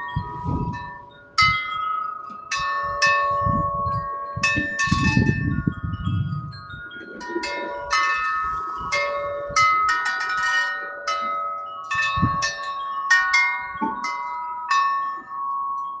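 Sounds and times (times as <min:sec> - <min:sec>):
gusty wind: 0:00.0 - 0:01.9, 0:02.5 - 0:09.9, 0:11.9 - 0:12.6
wind chimes ringing: 0:00.0 - 0:16.0.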